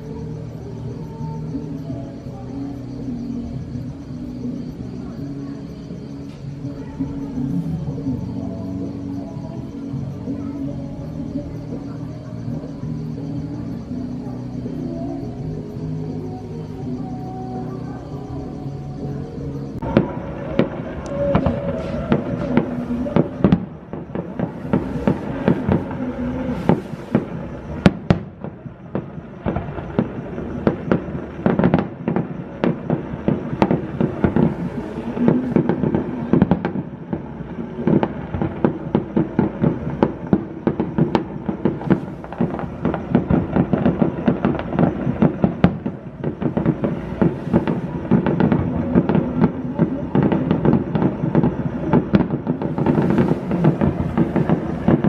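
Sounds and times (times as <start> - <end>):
fireworks cracking and popping: 0.0 - 55.0.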